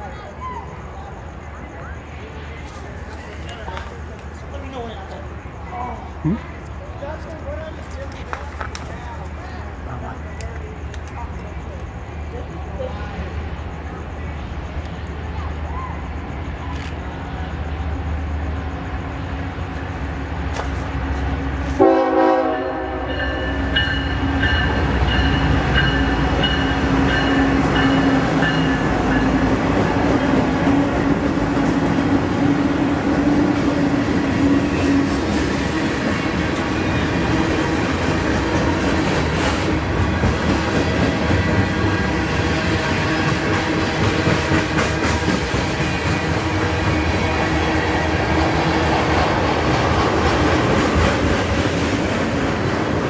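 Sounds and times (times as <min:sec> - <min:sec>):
diesel locomotive engine rumble: 0:00.0 - 0:53.0
train air horn: 0:21.7 - 0:23.7.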